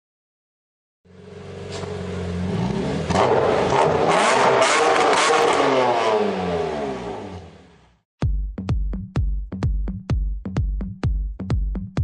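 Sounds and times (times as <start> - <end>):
car engine revving hard: 1.6 - 7.9.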